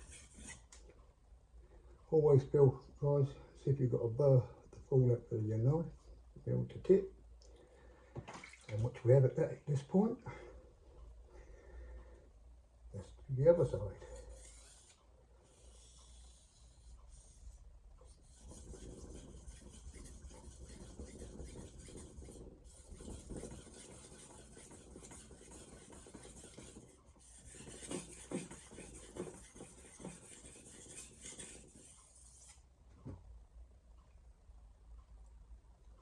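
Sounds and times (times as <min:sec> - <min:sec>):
knife scraping on whetstone: 0:00.0 - 0:00.8, 0:13.6 - 0:17.3, 0:18.1 - 0:32.6.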